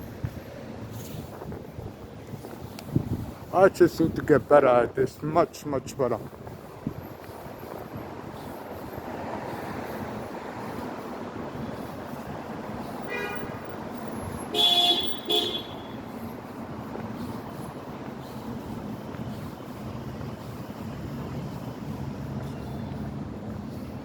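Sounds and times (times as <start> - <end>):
street traffic: 0.0 - 24.0
vehicle horn honking: 13.1 - 13.6, 14.5 - 16.0.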